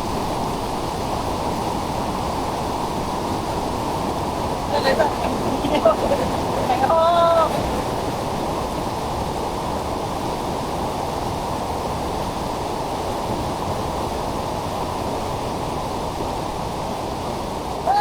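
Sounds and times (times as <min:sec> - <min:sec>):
steady rushing noise: 0:01.3 - 0:10.1.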